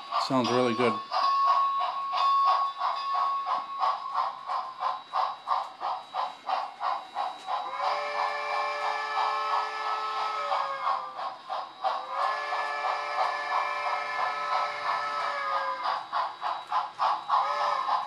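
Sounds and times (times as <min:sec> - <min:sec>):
steam locomotive chuffs from speaker: 0:00.0 - 0:18.0
steam whistle: 0:07.6 - 0:11.2, 0:12.0 - 0:15.8, 0:17.4 - 0:18.0.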